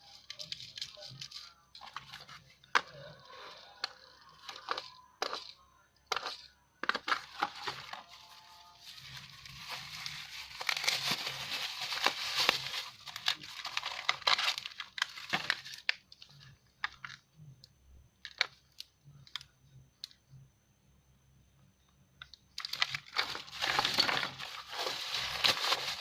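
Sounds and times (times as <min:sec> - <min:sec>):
packaging crinkling and tearing: 0:07.1 - 0:16.3, 0:22.6 - 0:26.0.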